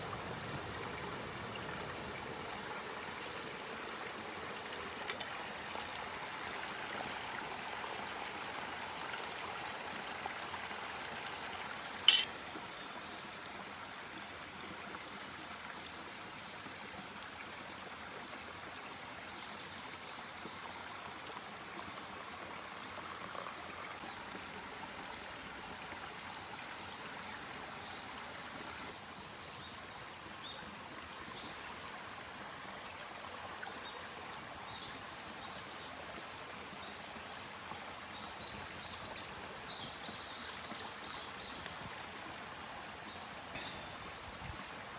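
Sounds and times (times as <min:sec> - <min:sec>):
flowing stream: 0:00.0 - 0:44.9
sharp click: 0:12.1 - 0:12.3.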